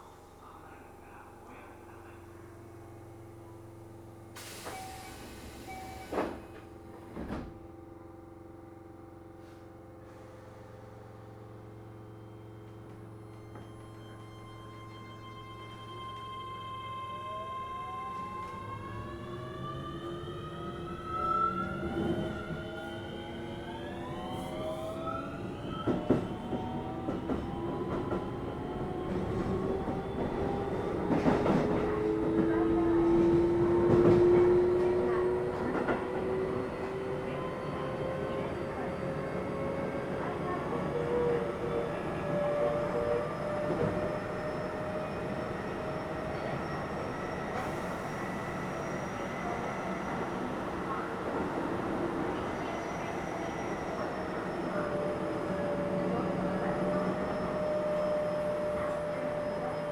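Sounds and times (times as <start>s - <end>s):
train wheels rumbling on rail: 21.6s - 59.9s.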